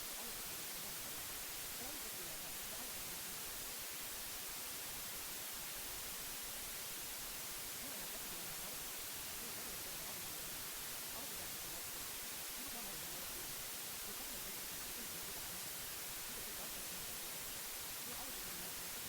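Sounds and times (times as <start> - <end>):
steady white noise hiss: 0.0 - 19.0.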